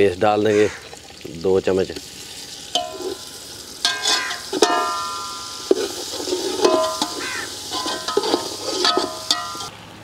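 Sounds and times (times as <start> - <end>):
masala sizzling in hot oil: 0.8 - 9.8
pot ringing: 2.7 - 9.7
spatula stirring and scraping pot: 2.8 - 3.2, 3.8 - 9.7
spatula knocking against pot: 6.6 - 9.7.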